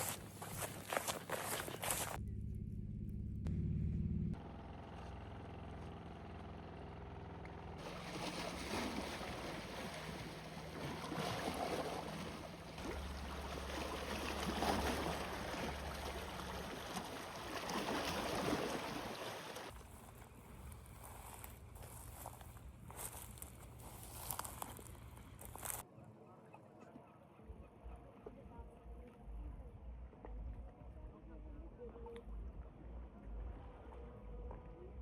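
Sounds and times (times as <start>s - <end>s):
low steady hum: 0.0s - 18.6s, 27.4s - 35.0s
rushing water: 7.8s - 19.8s.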